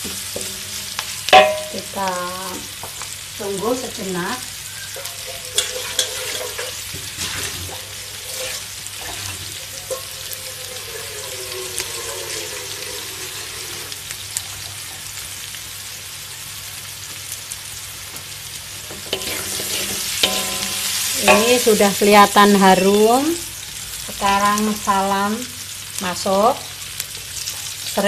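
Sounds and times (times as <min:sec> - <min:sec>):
paste sizzling in hot oil: 0:00.0 - 0:28.0.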